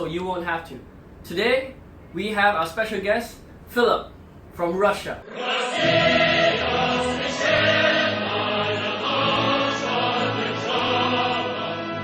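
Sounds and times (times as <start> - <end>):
choir singing held chords: 5.2 - 12.0.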